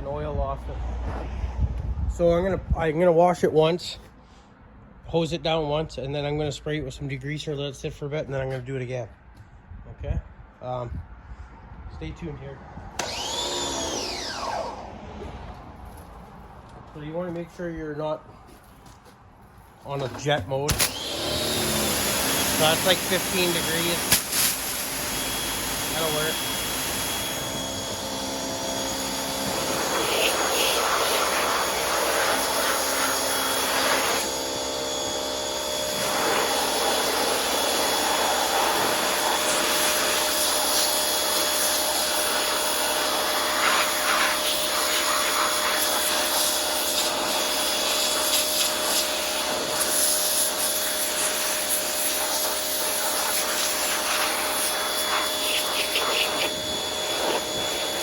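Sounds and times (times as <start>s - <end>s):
pressure washer spray hissing: 20.8s - 28.0s, 28.9s - 34.3s, 35.9s - 58.0s.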